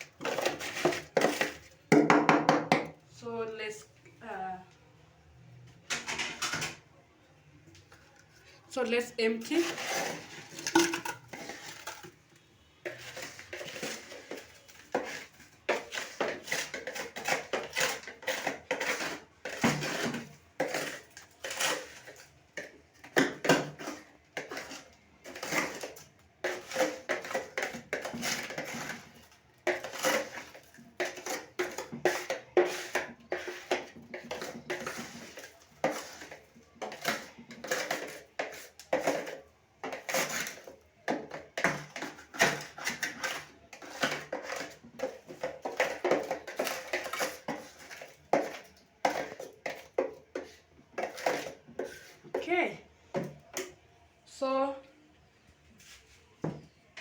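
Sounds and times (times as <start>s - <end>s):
ice being scraped: 0.0s - 1.6s, 9.2s - 12.1s, 12.8s - 52.4s
ice pieces clattering: 9.5s - 12.2s.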